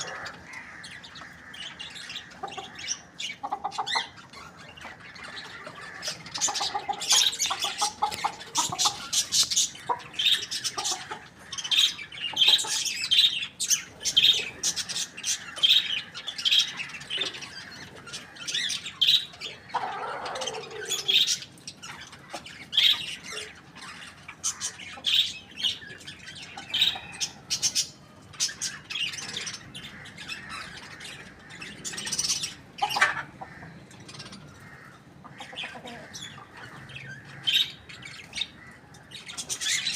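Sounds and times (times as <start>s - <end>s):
chickens chirping and squawking: 0.0s - 39.9s.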